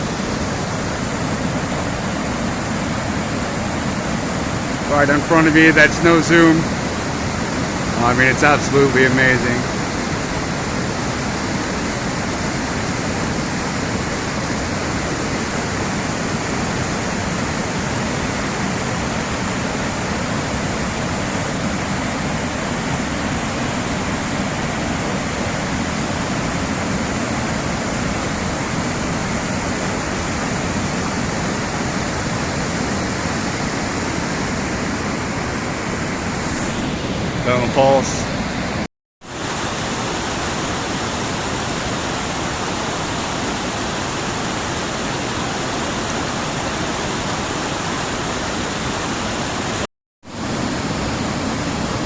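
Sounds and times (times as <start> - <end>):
waterfall rushing: 0.0 - 49.8.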